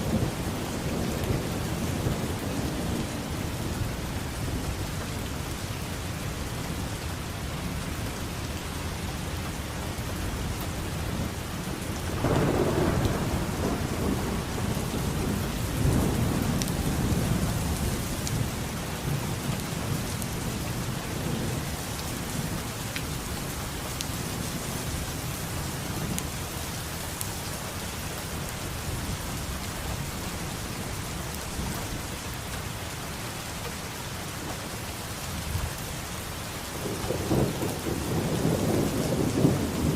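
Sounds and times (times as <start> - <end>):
thunder rumbling: 0.0 - 4.9, 11.0 - 22.8, 36.7 - 39.9
heavy rain hiss: 0.0 - 39.9
raindrop ticks: 16.5 - 16.8.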